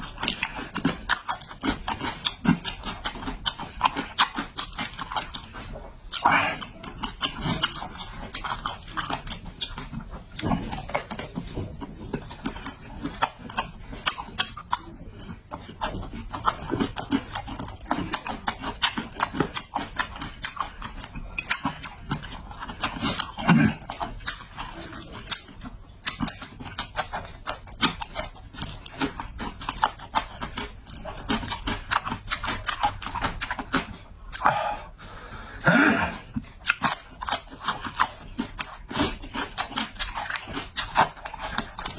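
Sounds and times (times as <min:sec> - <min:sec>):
person chewing: 0:00.0 - 0:41.9
throaty bursts: 0:34.4 - 0:36.5.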